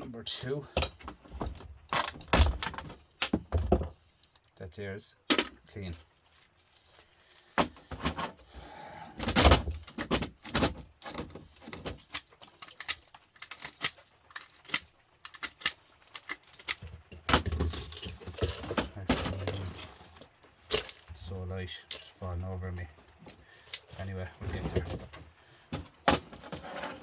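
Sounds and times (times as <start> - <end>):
scrap metal clinking and rattling: 5.3 - 22.3, 23.0 - 27.0.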